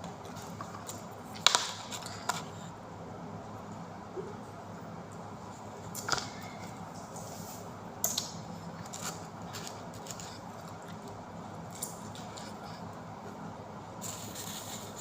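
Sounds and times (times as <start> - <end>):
steady low hum: 0.0 - 15.0
biting and chewing crunches: 8.8 - 12.8.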